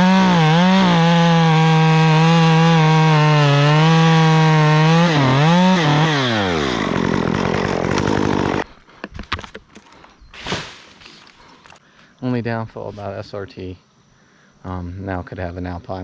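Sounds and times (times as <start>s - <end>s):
chainsaw running at high revs: 0.0s - 8.7s.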